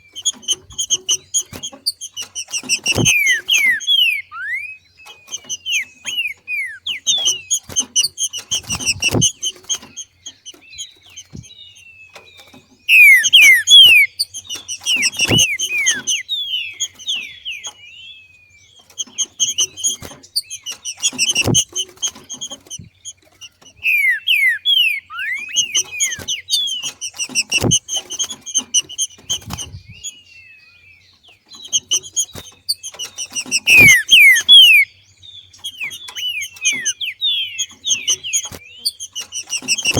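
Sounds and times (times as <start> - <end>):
bird fast sliding chirps: 0.0 - 17.9, 18.7 - 30.3, 31.5 - 39.9
dull thump: 7.7 - 9.9, 21.0 - 22.9.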